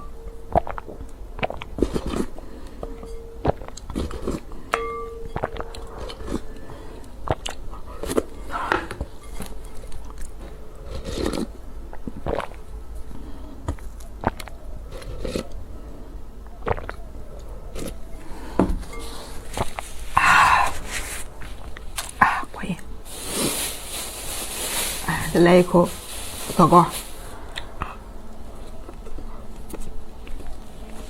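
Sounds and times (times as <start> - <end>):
chewing and crunching food: 0.0 - 22.4, 26.1 - 31.0
mouth clicks: 16.5 - 18.0.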